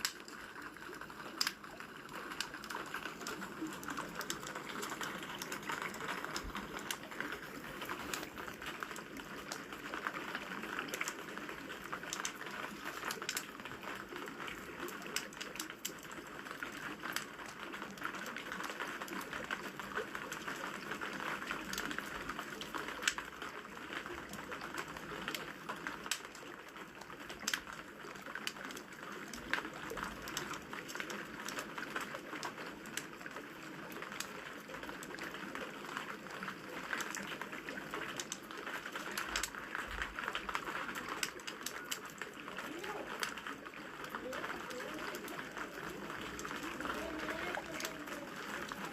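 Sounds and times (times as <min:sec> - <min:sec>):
rain hissing: 0:00.0 - 0:15.6, 0:36.2 - 0:48.9
wood fire crackling and popping: 0:00.0 - 0:48.9.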